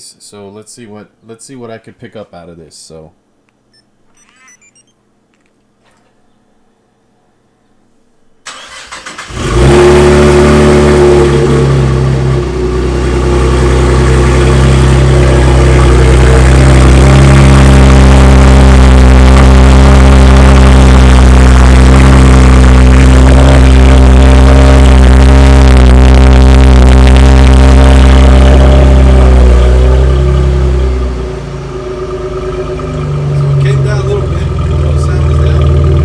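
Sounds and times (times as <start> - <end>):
car engine idling loudly: 11.2 - 36.0.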